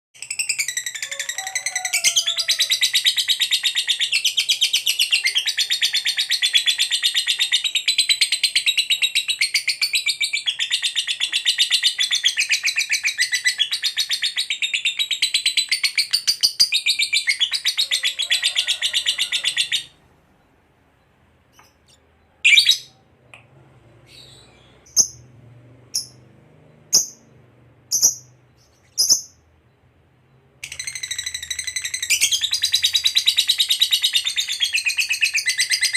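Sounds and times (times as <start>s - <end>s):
sharp bird chirps: 26.0s - 35.9s.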